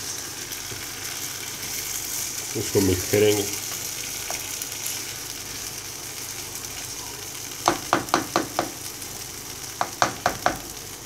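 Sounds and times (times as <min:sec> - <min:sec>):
chicken wings sizzling: 0:00.0 - 0:11.0
spatula knocking against pan: 0:07.6 - 0:08.8, 0:09.8 - 0:10.6.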